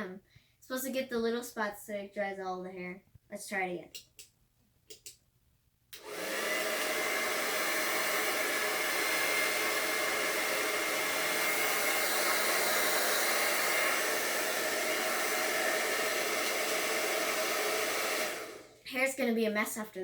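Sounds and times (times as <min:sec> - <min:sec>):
hair dryer blowing: 0:06.0 - 0:18.9.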